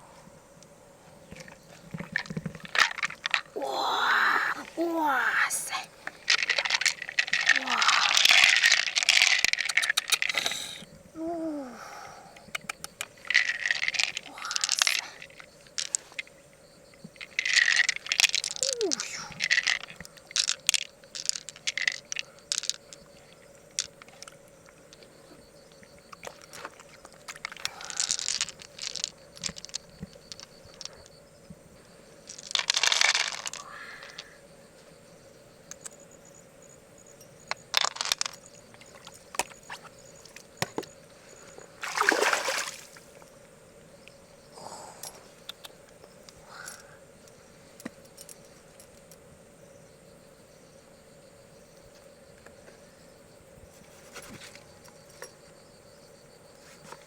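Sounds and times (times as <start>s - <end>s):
water splashing and pouring: 41.8s - 43.1s.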